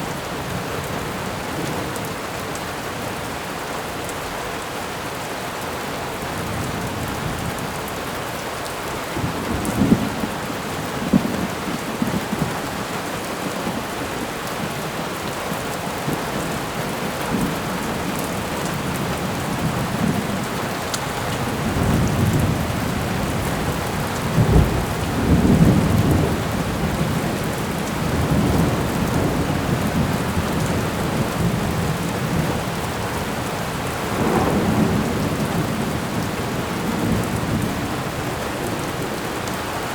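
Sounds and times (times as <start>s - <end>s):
heavy rain: 0.0s - 39.9s
rolling thunder: 21.2s - 38.7s.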